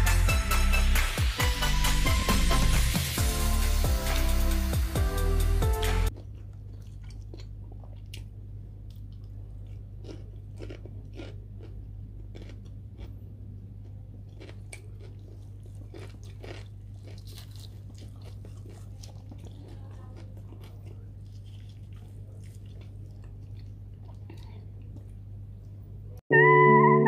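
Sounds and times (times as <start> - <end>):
chewing chicken crunches: 6.1 - 25.8.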